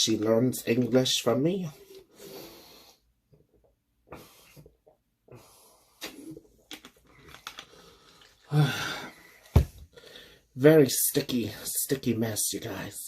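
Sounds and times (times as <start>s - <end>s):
person breathing: 2.0s - 3.1s, 4.1s - 6.3s, 7.0s - 10.6s.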